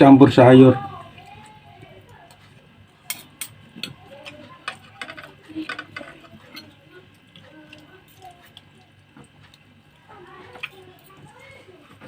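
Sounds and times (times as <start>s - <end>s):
chewing noodles: 6.2s - 12.0s.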